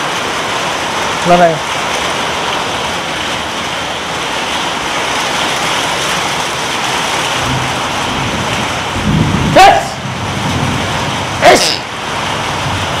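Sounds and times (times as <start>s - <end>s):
heavy rain falling: 0.0s - 13.0s
low rumble: 7.4s - 11.4s.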